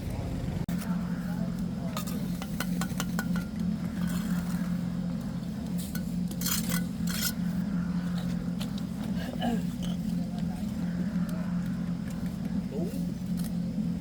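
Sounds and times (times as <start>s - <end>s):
steady low hum: 0.0s - 14.0s
metal clinking and scraping: 2.0s - 4.8s, 5.7s - 7.6s.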